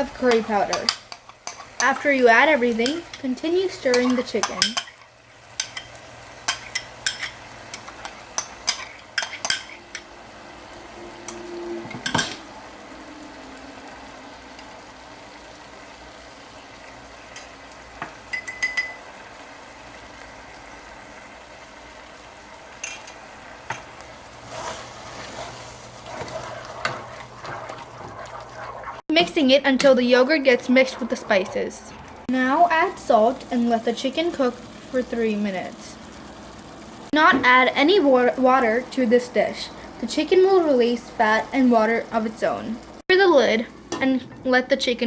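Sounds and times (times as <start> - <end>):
chicken sizzling in a pot: 0.0 - 44.1
spoon clinking and scraping pot: 0.2 - 2.1, 2.8 - 10.1, 11.2 - 12.5, 18.3 - 19.1, 22.8 - 24.0, 24.6 - 29.0.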